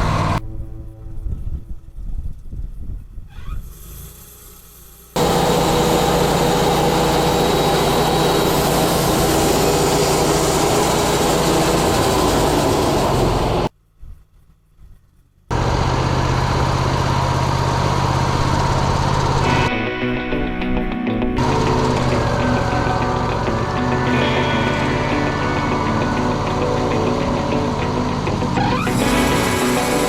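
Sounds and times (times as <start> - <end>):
sawmill engine hum and hiss: 3.7 - 13.7, 15.5 - 19.7, 21.4 - 30.0.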